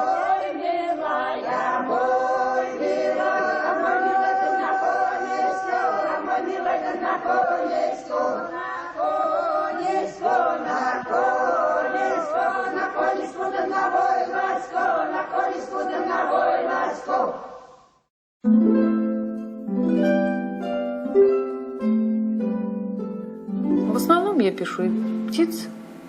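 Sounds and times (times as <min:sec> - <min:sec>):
choir singing: 0:00.0 - 0:17.9.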